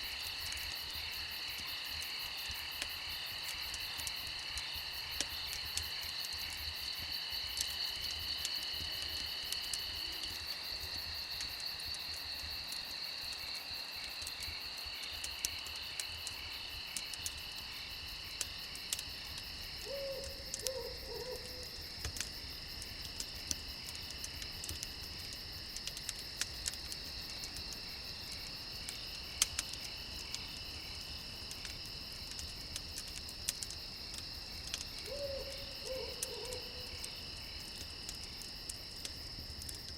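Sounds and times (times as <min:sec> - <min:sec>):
crickets chirping: 0:00.0 - 0:39.9
wood fire crackling: 0:00.0 - 0:39.9
owl hooting: 0:19.8 - 0:21.6, 0:35.1 - 0:36.8.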